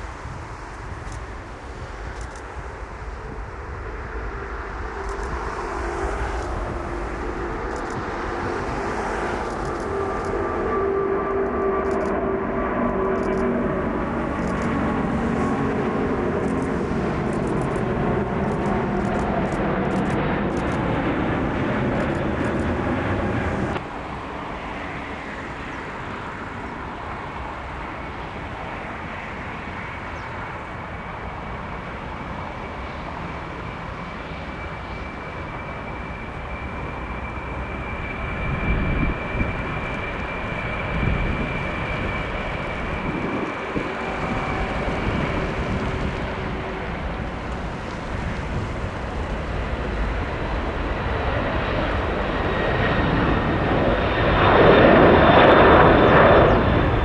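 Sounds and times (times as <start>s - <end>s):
steady engine noise: 0.0s - 24.3s, 34.2s - 54.4s
jet engines running loud: 0.0s - 57.0s.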